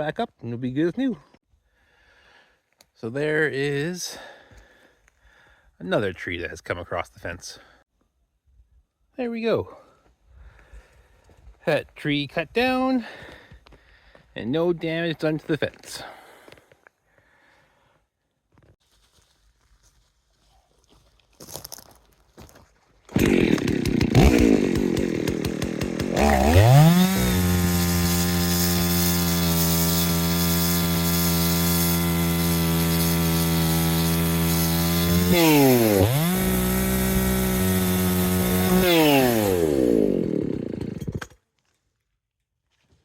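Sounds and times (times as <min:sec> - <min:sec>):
chainsaw revving: 0:23.1 - 0:41.4.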